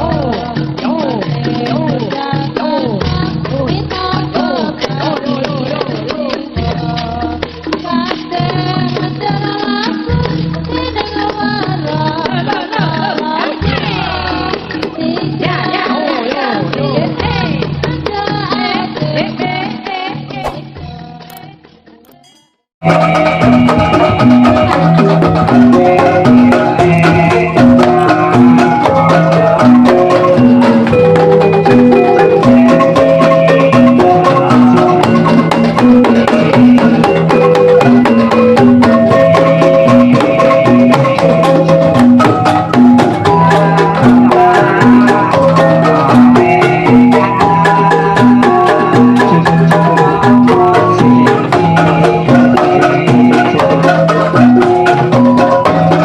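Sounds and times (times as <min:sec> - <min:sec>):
drum strokes: 0:20.4 - 0:21.4
metallophone and gong-chime melodies: 0:22.1 - 0:22.6
gamelan ensemble playing: 0:22.1 - 0:56.0.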